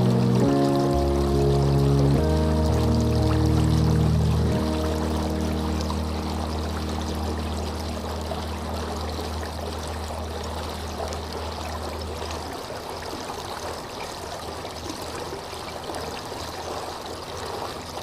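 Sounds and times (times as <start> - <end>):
soft music low note: 0.0 - 12.6
flowing water trickling: 0.0 - 18.0.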